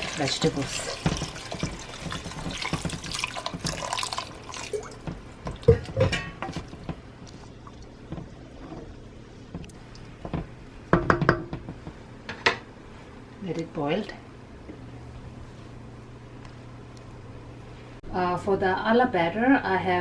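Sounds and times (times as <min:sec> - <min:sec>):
water pouring into a pot: 0:00.0 - 0:08.0
cookware knocking and clinking: 0:05.7 - 0:06.7.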